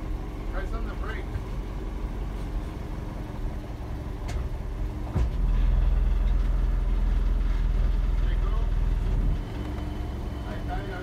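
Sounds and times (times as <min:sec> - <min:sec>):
car engine idling: 0:00.0 - 0:11.0
clunk: 0:04.2 - 0:07.4.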